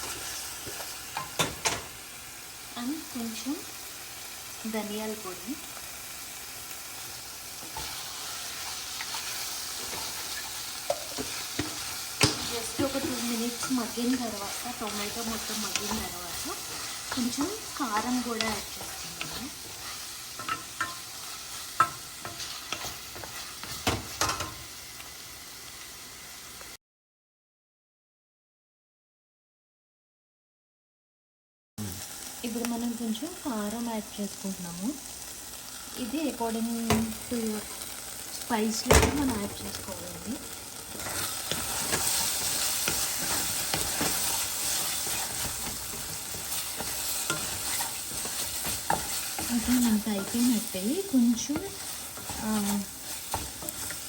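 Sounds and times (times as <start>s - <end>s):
food sizzling in oil: 0.0s - 26.8s, 31.8s - 54.0s
spatula scraping and knocking pan: 7.6s - 24.7s, 40.6s - 54.0s.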